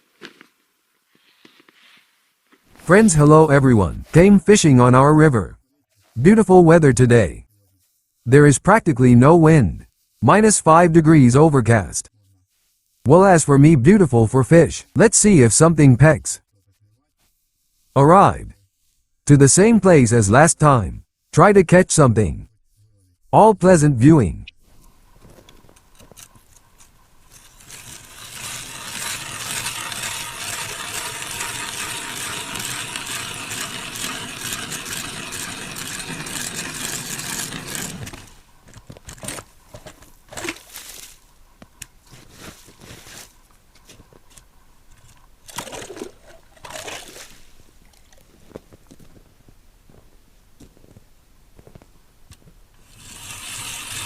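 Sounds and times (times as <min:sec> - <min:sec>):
scrapes and knocks: 0:25.2 - 0:40.9
ice auger grinding: 0:26.0 - 0:38.5, 0:45.5 - 0:47.5, 0:52.8 - 0:54.0.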